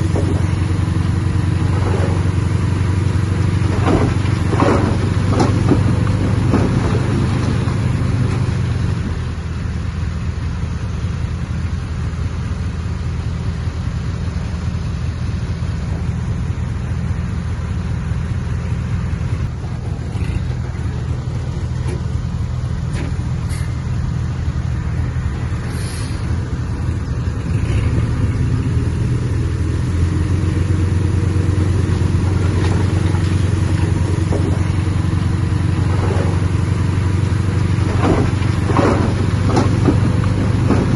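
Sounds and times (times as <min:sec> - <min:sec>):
heavy diesel engine under load: 0:00.0 - 0:40.9.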